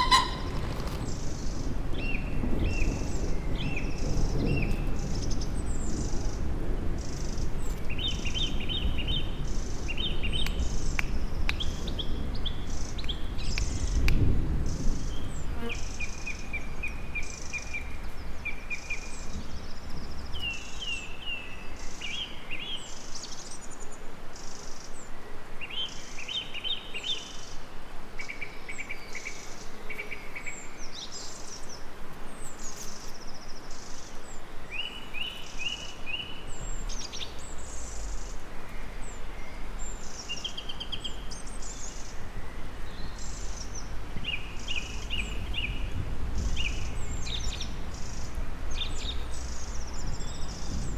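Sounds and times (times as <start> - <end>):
songbirds singing: 0.0 - 50.9
pulsing high insect chirp: 32.7 - 50.9
faint low rumble: 36.5 - 50.9.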